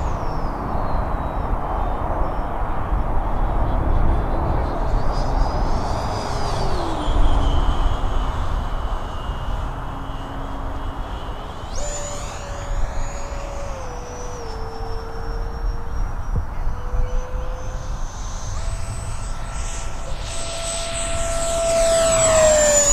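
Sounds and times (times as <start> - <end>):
model jet fan whine: 0.0 - 22.9.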